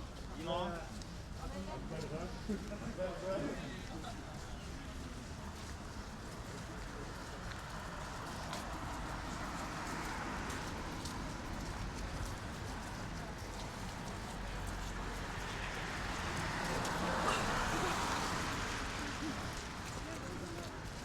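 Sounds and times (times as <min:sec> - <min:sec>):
traffic and tyre noise: 0:00.0 - 0:21.0
vehicle passing close by: 0:15.2 - 0:19.8.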